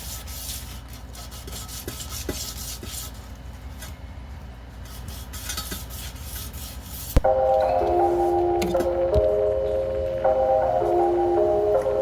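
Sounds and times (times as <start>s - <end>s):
sanding wheel rim: 0.0s - 3.2s, 4.8s - 7.2s.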